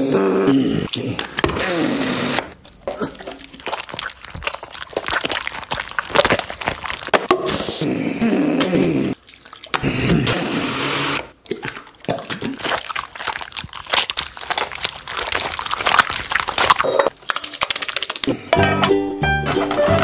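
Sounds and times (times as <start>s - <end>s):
wet squelching of kneaded mixture: 2.6s - 7.2s, 9.1s - 9.8s, 11.4s - 18.4s.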